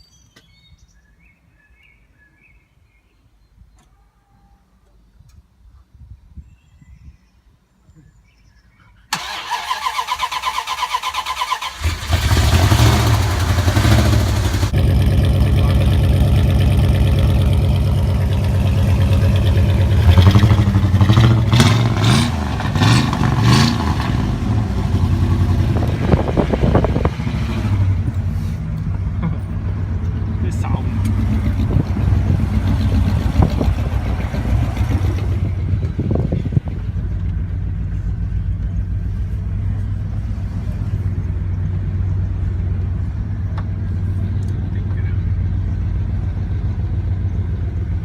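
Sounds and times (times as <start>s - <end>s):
engine cranking on starter: 9.1s - 16.0s
engine running loud: 11.7s - 48.0s.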